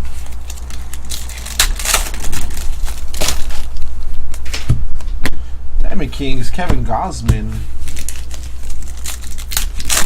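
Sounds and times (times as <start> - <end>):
trading card wrappers crinkling: 0.0 - 4.4, 7.4 - 10.0
steady low hum: 0.0 - 10.0.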